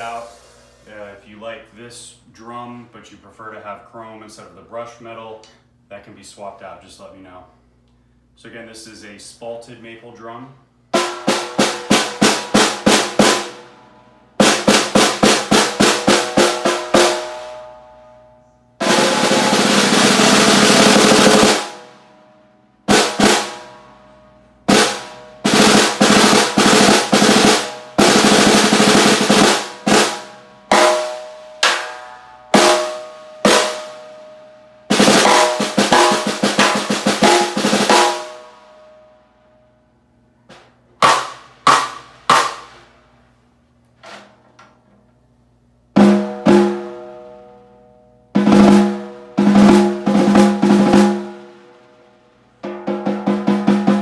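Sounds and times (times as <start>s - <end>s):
snare drum playing: 11.0s - 13.6s, 14.4s - 17.6s, 18.8s - 22.0s, 22.9s - 23.7s, 24.7s - 34.1s, 34.9s - 38.6s, 41.0s - 43.0s, 48.4s - 51.6s, 52.6s - 54.0s
snare drum roll: 11.0s - 13.7s, 14.4s - 17.6s, 18.8s - 22.0s, 22.9s - 23.7s, 24.7s - 34.1s, 34.9s - 38.7s, 40.5s - 43.0s, 48.4s - 51.8s, 52.6s - 54.0s.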